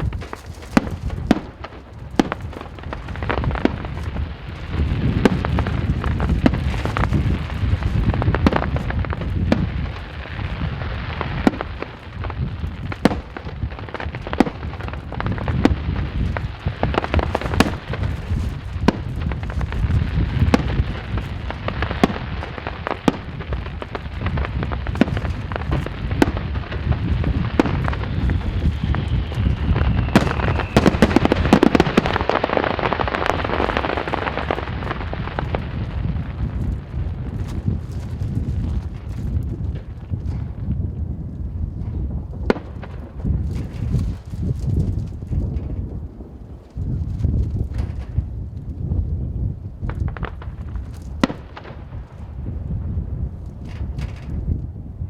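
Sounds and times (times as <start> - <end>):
fireworks bangs: 0.0 - 48.4, 49.8 - 54.5
falling firework whistle: 24.9 - 36.3.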